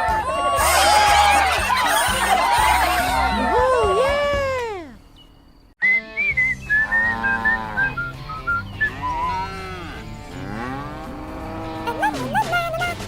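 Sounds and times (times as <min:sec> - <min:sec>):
whistled melody with beat: 0:05.8 - 0:09.6
cattle mooing: 0:06.8 - 0:08.2, 0:08.8 - 0:12.0.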